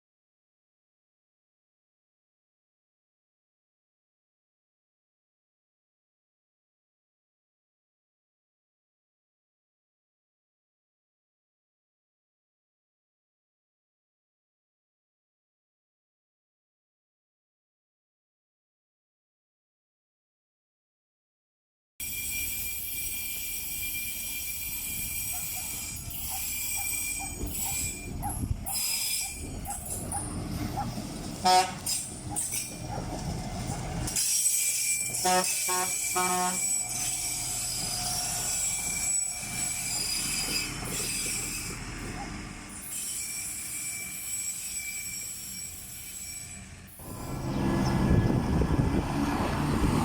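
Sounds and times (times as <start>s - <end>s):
high-pitched wheel squeal: 22.0s - 48.8s
rail cars rumbling on track: 22.0s - 50.0s
low engine rumble: 47.0s - 50.0s.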